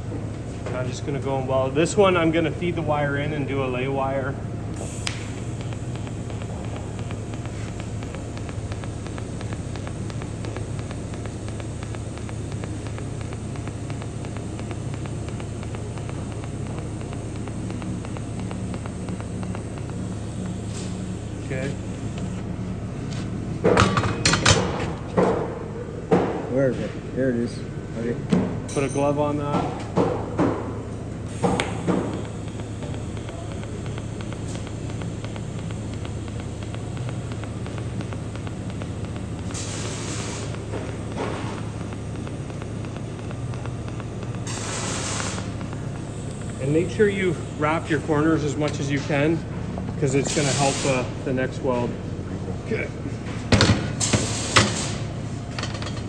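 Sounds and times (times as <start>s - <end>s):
welding arc hissing and humming: 0.0s - 26.3s, 28.6s - 56.0s
fast even ticking: 2.0s - 22.4s, 31.2s - 49.4s
low hum: 31.2s - 50.2s.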